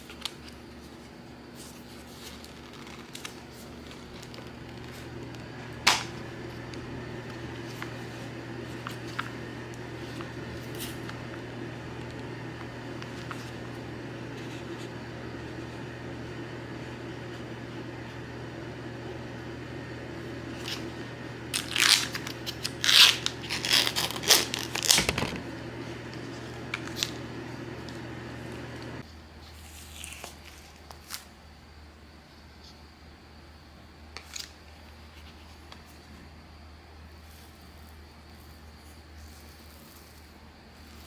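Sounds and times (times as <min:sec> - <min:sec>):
crunching and crinkling: 0:00.0 - 0:13.8, 0:20.5 - 0:27.2, 0:29.0 - 0:31.4, 0:37.1 - 0:41.0.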